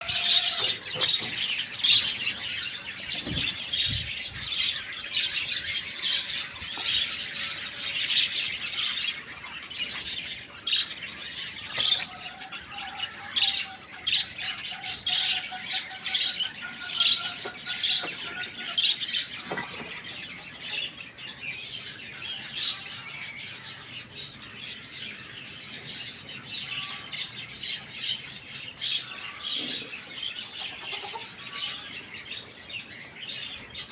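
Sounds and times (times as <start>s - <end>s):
small birds chirping: 0.0s - 33.9s.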